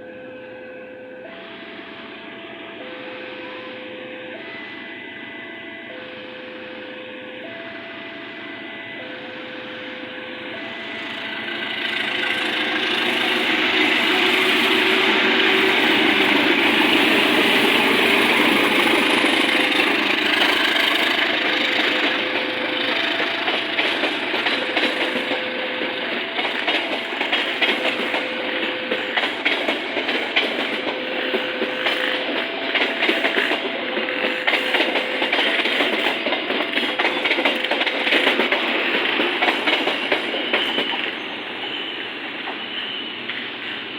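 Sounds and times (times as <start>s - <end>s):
train wheels clattering on rails: 10.8s - 43.9s.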